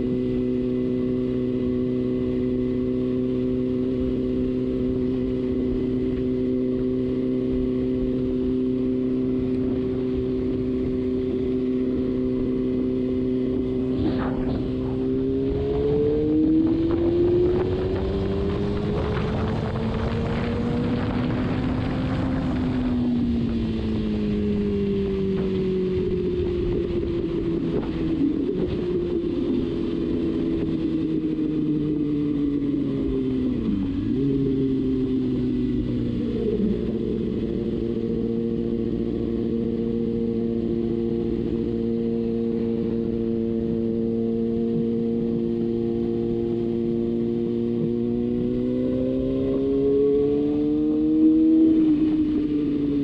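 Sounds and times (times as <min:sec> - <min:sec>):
motorcycle engine at speed: 0:00.0 - 0:53.0
road noise: 0:00.0 - 0:53.0
wind noise: 0:09.0 - 0:40.1.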